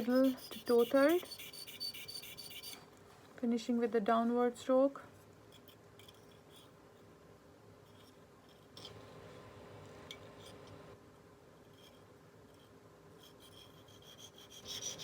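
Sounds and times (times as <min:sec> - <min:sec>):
blade scraping on sharpening stone: 0:00.0 - 0:02.8.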